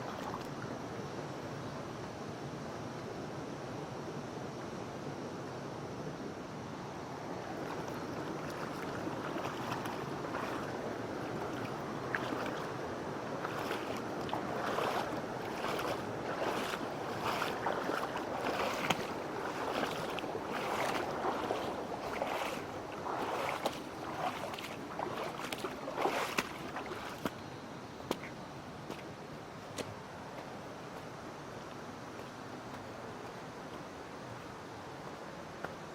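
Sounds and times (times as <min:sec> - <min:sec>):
water splashes: 0:00.0 - 0:00.7, 0:07.4 - 0:27.4
stream running over rocks: 0:00.0 - 0:01.1, 0:06.8 - 0:35.9.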